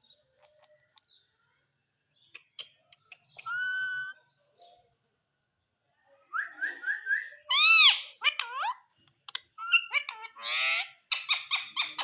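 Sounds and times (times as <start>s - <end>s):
parakeet calling and chattering: 2.2s - 4.3s, 7.3s - 12.0s
parakeet clicks: 9.1s - 10.2s.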